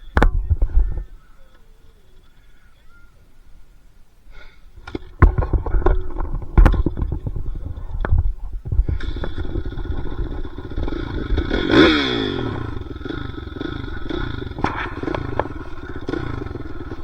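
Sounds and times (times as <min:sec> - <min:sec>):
knocks and clatter: 0:04.8 - 0:17.0
dirt bike engine revving: 0:08.8 - 0:17.0.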